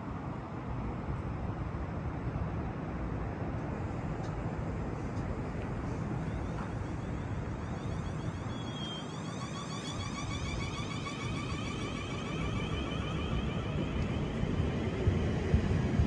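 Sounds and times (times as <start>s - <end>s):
train rumbling past: 4.5s - 16.0s
high whine of rising tones: 6.0s - 16.0s.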